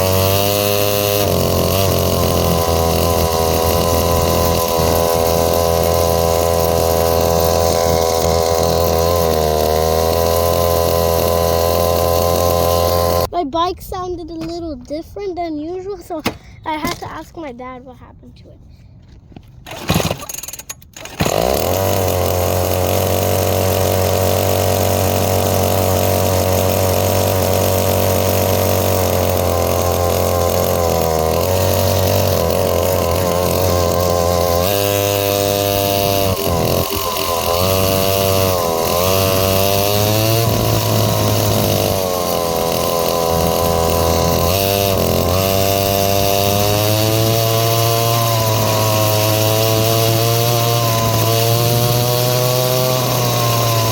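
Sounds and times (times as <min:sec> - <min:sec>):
dirt bike engine revving: 0:00.0 - 0:13.3, 0:19.6 - 0:53.9
person talking: 0:13.2 - 0:18.8.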